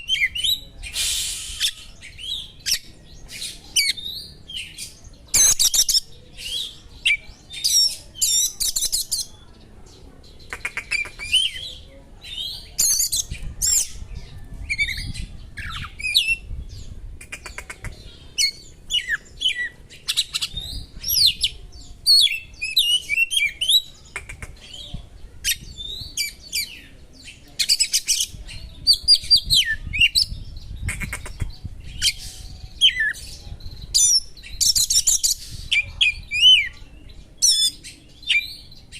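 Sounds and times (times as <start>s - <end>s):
songbird whistling and trilling: 14.7s - 16.5s.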